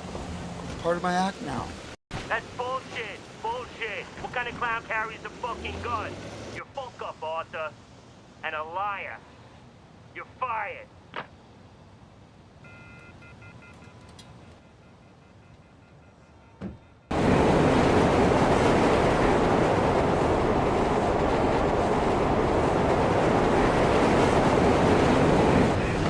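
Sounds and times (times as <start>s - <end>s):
subway train rushing rumble: 17.1s - 26.0s.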